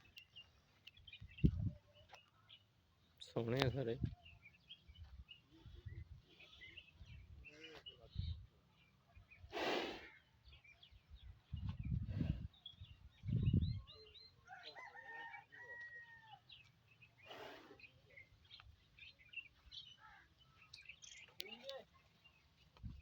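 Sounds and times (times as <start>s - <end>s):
small birds chirping: 0.0s - 23.0s
rooster crowing: 14.4s - 16.4s.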